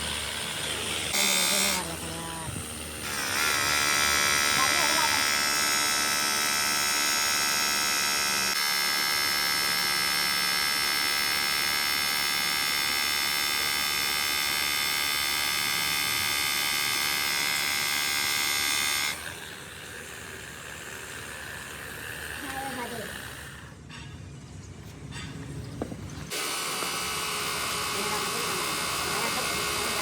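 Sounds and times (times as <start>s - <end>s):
high-pitched electric motor whine: 0.0s - 23.8s, 26.3s - 30.0s.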